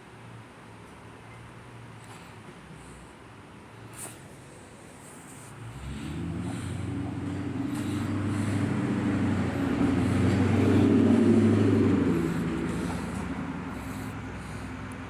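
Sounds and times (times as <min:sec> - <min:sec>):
vehicle engine approaching: 0:05.3 - 0:15.0.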